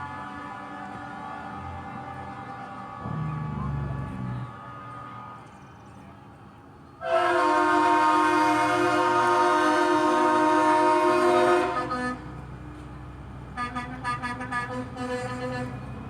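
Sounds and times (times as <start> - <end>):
truck air horn blast: 0.0 - 2.2, 7.0 - 12.4, 13.5 - 15.9.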